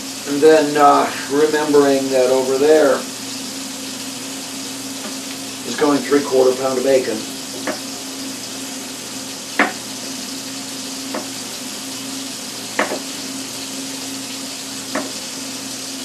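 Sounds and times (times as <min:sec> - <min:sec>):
bacon sizzling in a frying pan: 0:00.0 - 0:16.0
knocks against a pan: 0:07.6 - 0:07.9, 0:09.6 - 0:09.8, 0:11.1 - 0:11.4, 0:12.8 - 0:13.1, 0:14.9 - 0:15.2.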